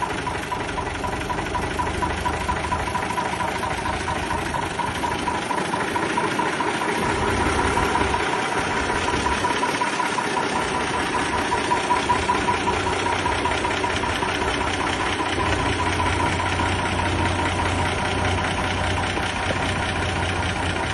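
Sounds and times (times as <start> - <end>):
tractor diesel engine running: 0.0 - 20.9.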